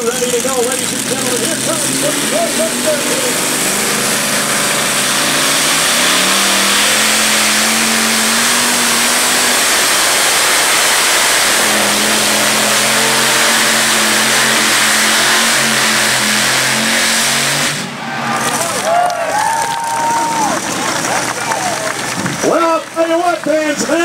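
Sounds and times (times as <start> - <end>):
tractor engines howling: 0.0 - 24.0.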